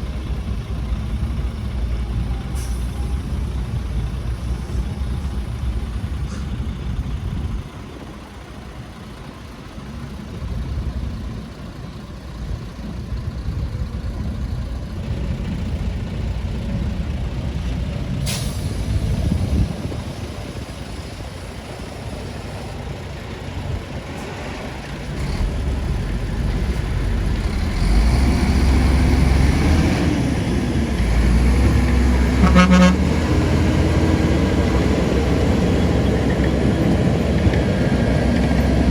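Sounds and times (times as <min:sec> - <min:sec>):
heavy diesel engines rumbling: 0:00.0 - 0:38.9
sharp hiss: 0:18.2 - 0:19.2
horn toot: 0:32.3 - 0:33.2.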